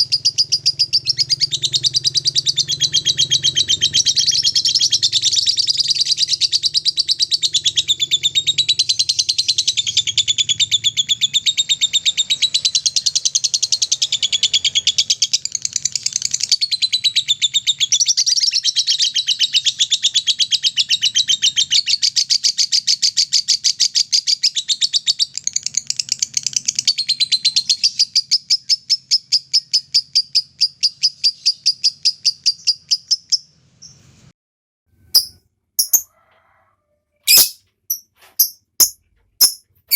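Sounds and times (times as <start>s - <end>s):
bird chattering trill: 35.2s - 36.1s, 37.3s - 39.6s.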